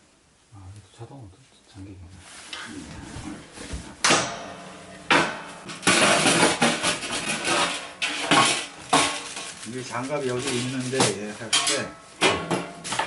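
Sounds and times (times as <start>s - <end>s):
metal clanks from wood stove: 4.0s - 13.0s
rattling clatter: 4.0s - 13.0s.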